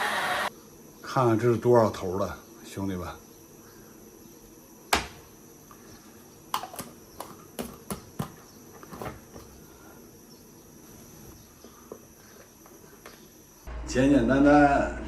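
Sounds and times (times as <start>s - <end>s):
kitchen items knocking and clicking: 6.5s - 9.6s.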